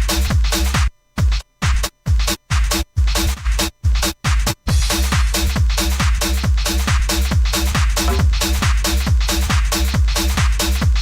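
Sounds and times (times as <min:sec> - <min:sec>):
electronic dance music: 0:08.1 - 0:08.6.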